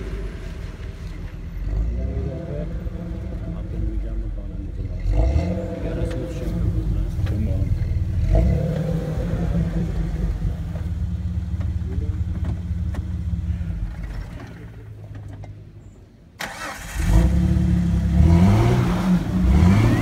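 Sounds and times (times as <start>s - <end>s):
car engine running: 0.0s - 15.6s.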